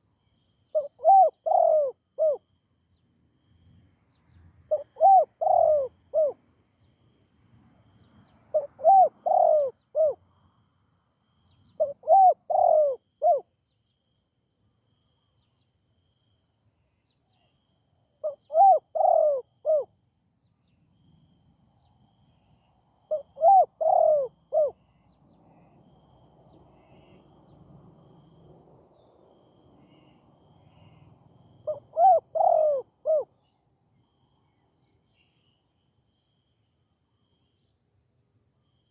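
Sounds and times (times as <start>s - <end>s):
dove cooing: 0.7s - 2.4s, 4.7s - 6.4s, 8.5s - 10.2s, 11.8s - 13.5s, 18.2s - 19.9s, 23.1s - 24.8s, 31.6s - 33.3s.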